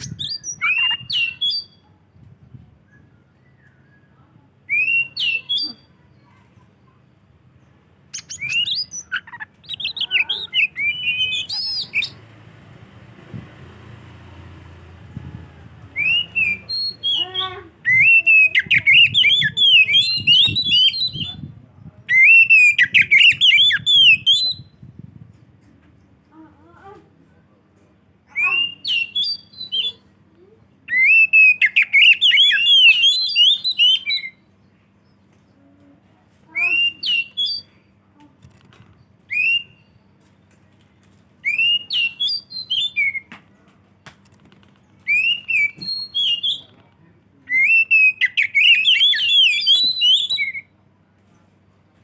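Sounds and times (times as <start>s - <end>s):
bird singing whistled phrases: 0.0s - 1.8s, 2.9s - 5.9s, 8.2s - 12.2s, 15.9s - 21.5s, 22.1s - 24.8s, 28.3s - 30.0s, 30.9s - 34.4s, 36.6s - 37.8s, 39.3s - 40.0s, 41.4s - 43.3s, 45.1s - 46.7s, 47.5s - 50.7s.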